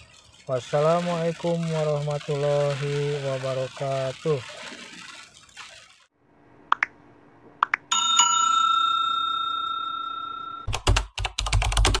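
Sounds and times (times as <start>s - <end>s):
bell ringing: 7.9s - 10.7s.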